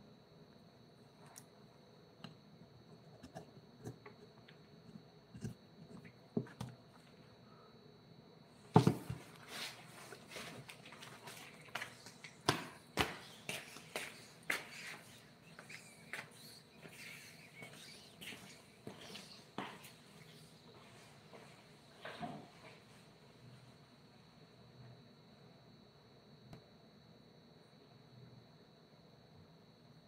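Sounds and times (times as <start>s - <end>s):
faint high whine: 0.0s - 30.0s.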